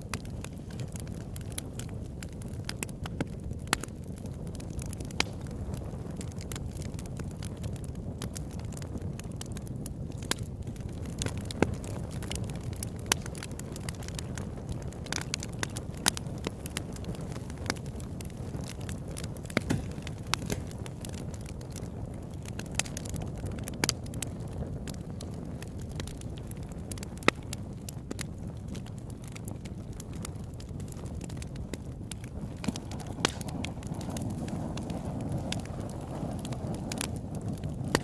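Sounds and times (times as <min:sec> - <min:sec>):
burning wood crackling and popping: 0:00.0 - 0:38.0
low rumble of flames: 0:00.0 - 0:38.0
sharp snaps of wood: 0:19.6 - 0:20.7, 0:32.7 - 0:33.5.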